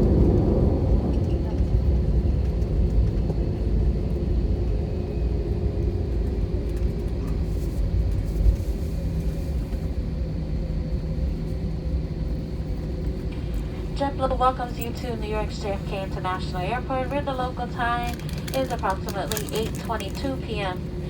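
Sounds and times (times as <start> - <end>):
airplane cabin rumble: 0.0 - 21.0
steady hum tone: 10.9 - 21.0.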